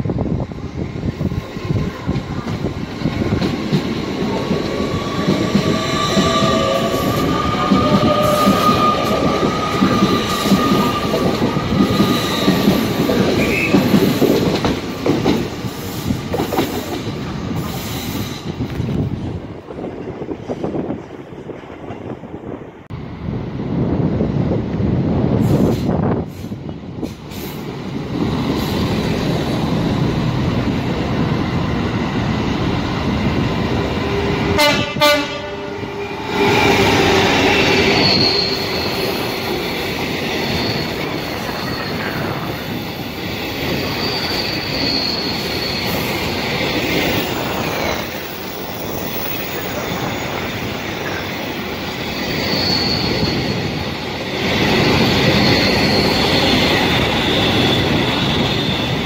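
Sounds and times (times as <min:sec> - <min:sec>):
train wheels rumbling and clattering: 0:00.0 - 0:59.0
high wheel squeal: 0:04.9 - 0:14.2, 0:36.2 - 0:59.0
train horn: 0:13.4 - 0:13.9, 0:34.5 - 0:36.2.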